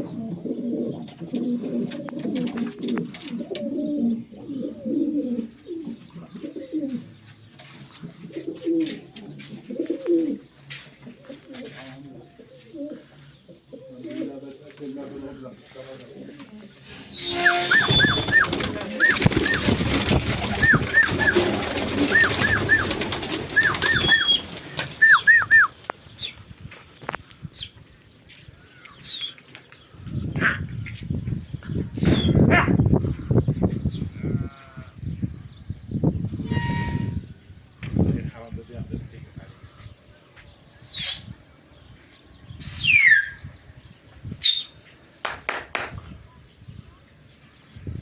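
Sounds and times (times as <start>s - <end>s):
pigeons cooing: 0.0s - 14.5s, 16.0s - 26.4s
rustling: 14.1s - 27.2s
short high bird chirps: 17.1s - 19.7s, 20.6s - 25.8s
falling bird whistle: 17.1s - 25.8s, 40.9s - 41.4s, 42.6s - 43.4s.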